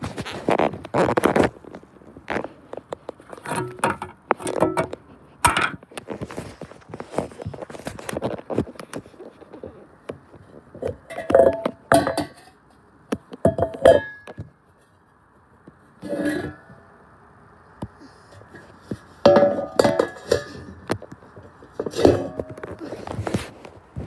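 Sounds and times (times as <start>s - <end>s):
hard objects clinking and rattling: 10.6s - 12.6s, 18.5s - 23.4s.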